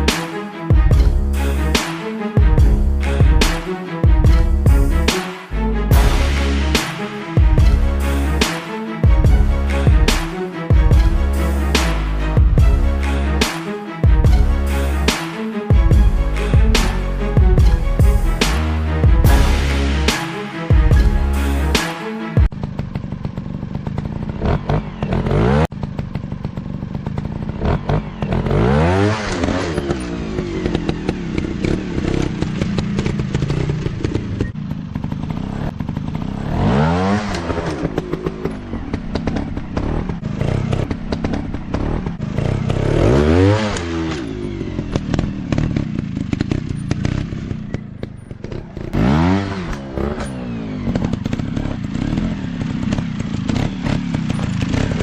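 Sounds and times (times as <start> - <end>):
motorcycle engines revving: 22.4 - 55.0.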